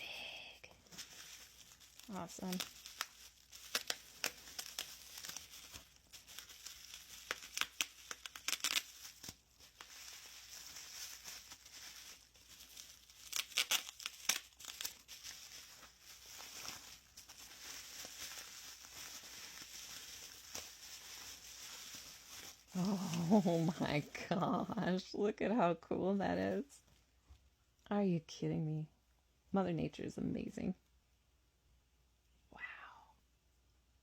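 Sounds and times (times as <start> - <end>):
packaging rustling: 0.7 - 24.1
packaging crinkling and tearing: 0.8 - 24.1.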